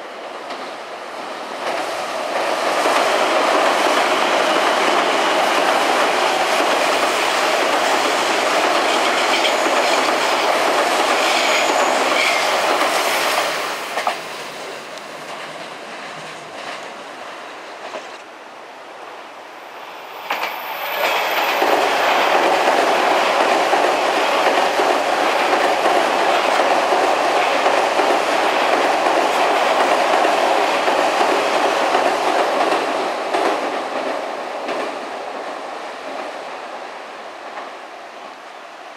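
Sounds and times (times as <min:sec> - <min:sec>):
train wheels clattering on bridge: 0:01.6 - 0:17.0, 0:20.2 - 0:35.1.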